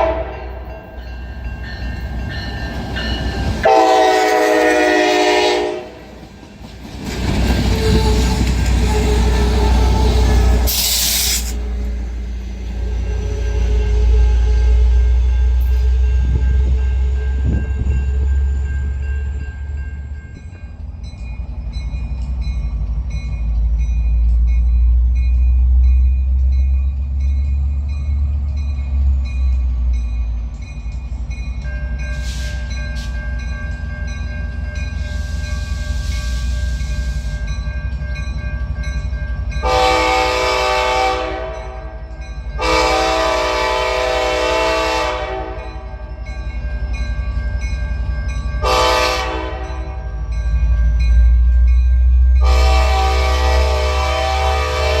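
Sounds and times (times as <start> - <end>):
train horn blasts: 0.0 - 0.8, 3.6 - 6.1, 39.6 - 42.0, 42.6 - 45.9, 48.6 - 50.0, 52.4 - 55.0
train rumbling past: 0.0 - 55.0.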